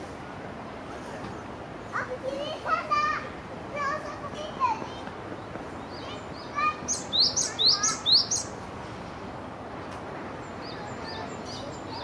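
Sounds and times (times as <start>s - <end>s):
bird singing high sweeping notes: 5.9s - 8.5s.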